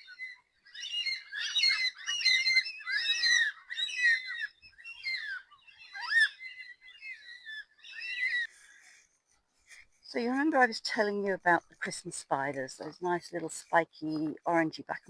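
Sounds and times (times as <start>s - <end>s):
cockatoos calling: 0.0s - 9.1s.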